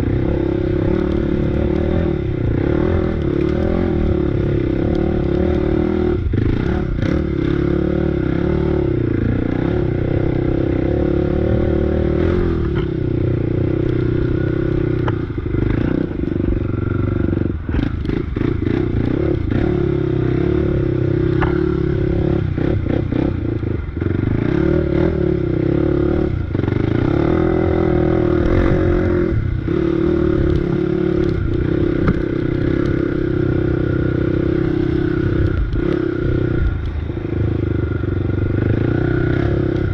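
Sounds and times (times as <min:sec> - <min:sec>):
motorbike engine under throttle: 0:00.0 - 0:39.9
bike rattles and knocks: 0:21.2 - 0:21.8.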